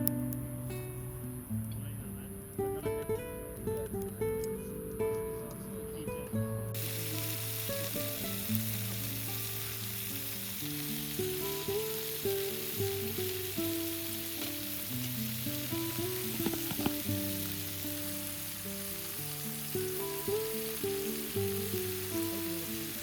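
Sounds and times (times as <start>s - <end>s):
garlic sizzling in oil: 6.8s - 23.0s.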